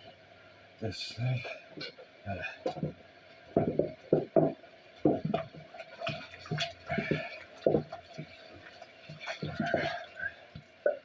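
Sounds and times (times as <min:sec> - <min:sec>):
water splashing in a sink: 0:04.4 - 0:11.0.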